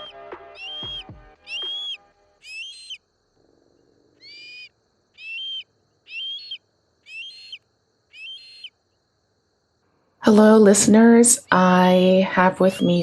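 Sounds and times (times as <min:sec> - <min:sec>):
bird calling: 0:00.0 - 0:03.1, 0:04.2 - 0:08.8.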